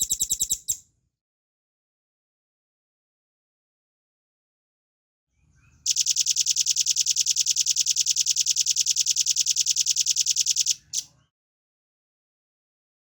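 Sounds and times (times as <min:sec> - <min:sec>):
bird singing rapid trill: 0:00.0 - 0:00.8, 0:05.9 - 0:11.0.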